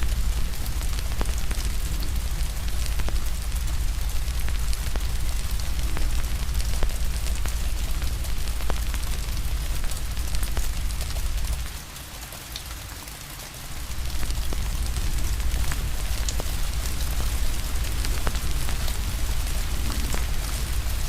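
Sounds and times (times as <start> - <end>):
wood fire crackling and popping: 0.0 - 12.0, 13.7 - 21.0
steady rain hiss: 0.0 - 21.0
deep low rumble: 13.8 - 21.0.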